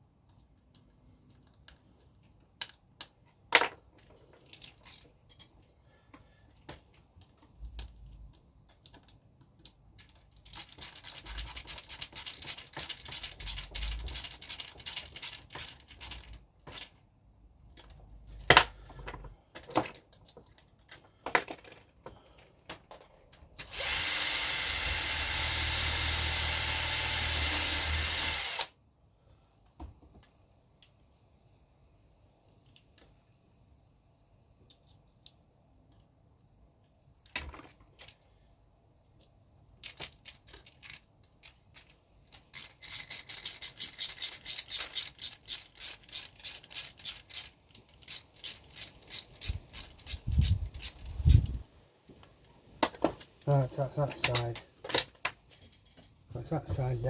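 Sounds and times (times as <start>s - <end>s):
small parts clicking together: 2.4s - 3.2s, 6.7s - 17.0s, 37.2s - 38.3s, 39.2s - 51.6s
handheld power tool running: 23.6s - 28.7s.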